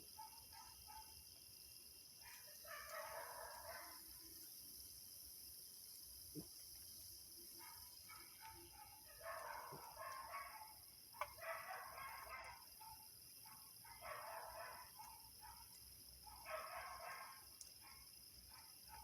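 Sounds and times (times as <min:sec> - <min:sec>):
insect chirring: 0:00.0 - 0:19.0.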